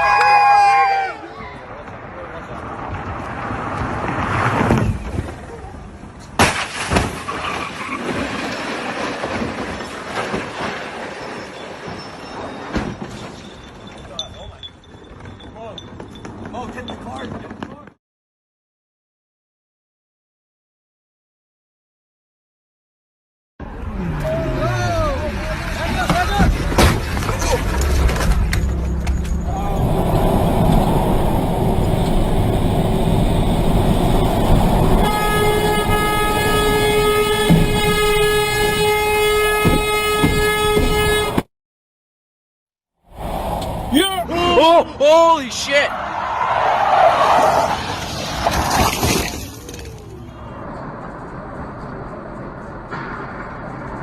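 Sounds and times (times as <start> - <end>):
vehicle and road noise: 0.0 - 18.0, 23.6 - 41.5, 43.0 - 54.0
train horn blast: 34.9 - 41.4.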